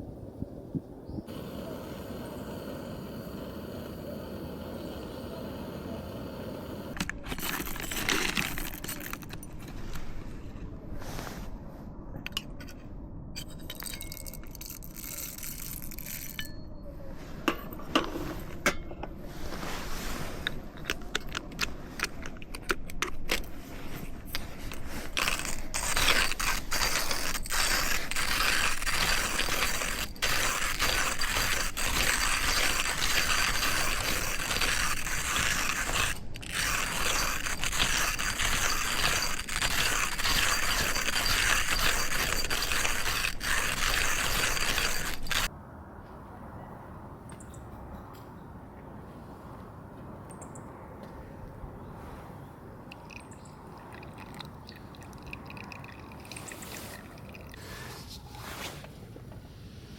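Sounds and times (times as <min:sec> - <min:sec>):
steady hiss: 0:01.2 - 0:07.0
hard objects clinking and scraping: 0:06.9 - 0:10.4, 0:13.4 - 0:16.7, 0:17.3 - 0:45.5.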